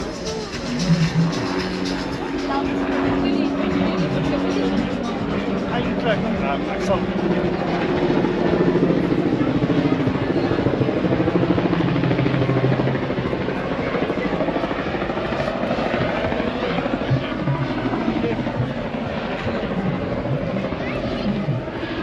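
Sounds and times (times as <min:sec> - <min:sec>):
music: 0:00.0 - 0:13.4
loud engine pulsing: 0:00.0 - 0:14.2, 0:14.8 - 0:22.0
crowd chatter: 0:00.0 - 0:22.0.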